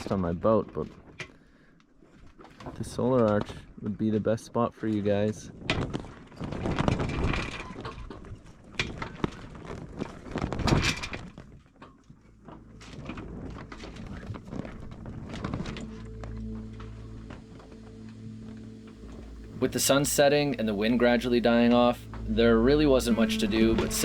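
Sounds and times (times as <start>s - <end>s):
wind: 0.0s - 24.0s
background music: 12.4s - 24.0s
sea noise: 12.5s - 24.0s.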